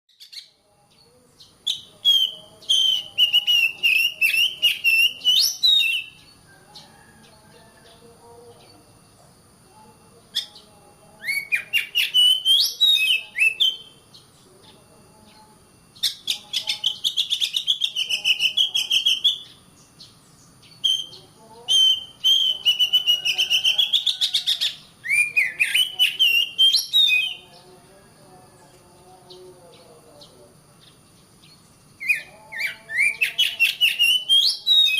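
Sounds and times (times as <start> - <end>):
bird singing chirps and whistles: 0.1 - 6.4, 11.2 - 14.3, 16.0 - 27.5, 31.4 - 34.9.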